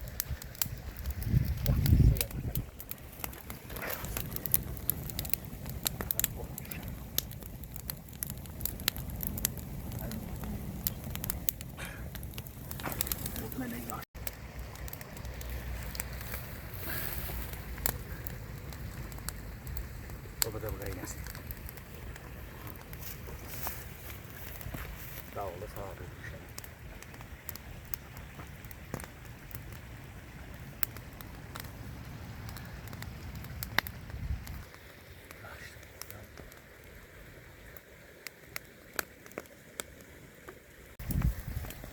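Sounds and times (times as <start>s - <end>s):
steady low rumble: 0.0s - 25.3s
rain: 0.0s - 41.9s
wood fire crackling and popping: 0.0s - 41.9s.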